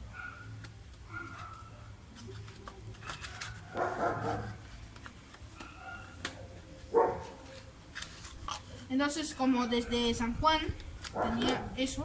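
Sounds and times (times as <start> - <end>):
ticks and rustles of handling: 0.5 - 12.0
dog barking outburst: 3.8 - 4.6, 7.0 - 7.3, 11.2 - 11.8.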